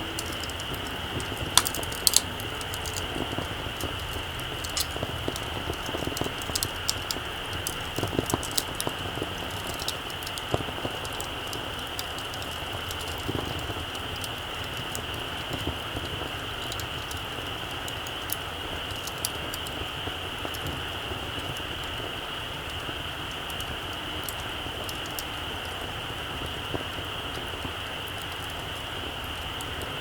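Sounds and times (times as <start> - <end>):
campfire crackling and popping: 0.0 - 30.0
steady high hiss: 0.0 - 30.0.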